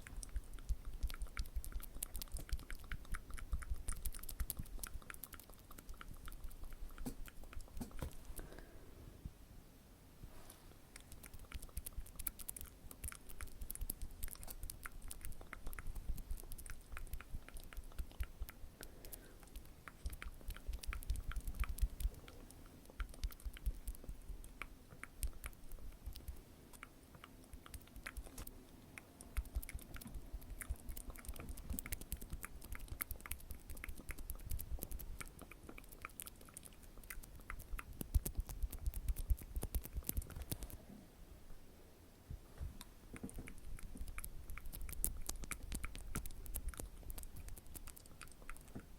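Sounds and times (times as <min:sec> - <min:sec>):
wet mouth clicks and smacks: 0:00.0 - 0:08.4, 0:11.0 - 0:40.8, 0:42.8 - 0:48.9.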